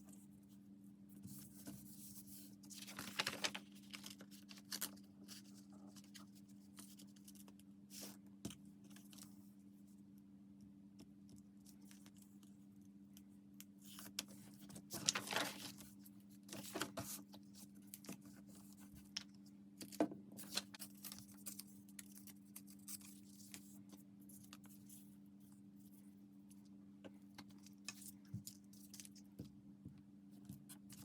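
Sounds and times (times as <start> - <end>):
paper rustling: 1.2 - 8.2, 13.8 - 25.0.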